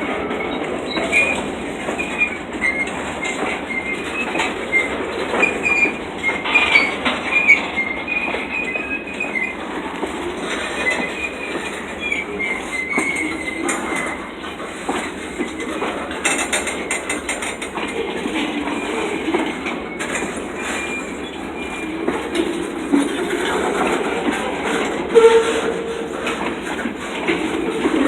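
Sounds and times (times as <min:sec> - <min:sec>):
wheel squeals on rail: 0:00.0 - 0:17.6, 0:18.5 - 0:28.0
freight train cars rolling: 0:00.0 - 0:28.0.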